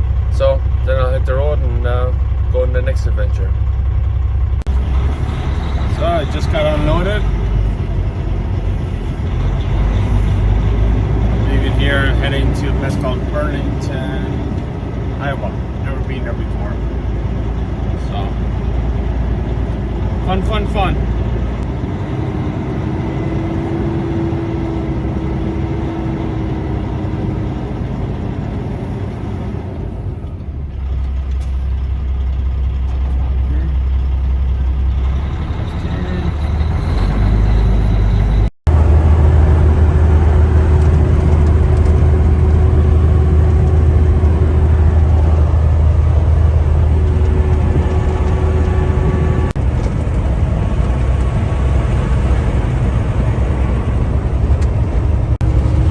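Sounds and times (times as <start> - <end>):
diesel truck engine running: 0.0 - 55.9
road noise: 0.0 - 55.9.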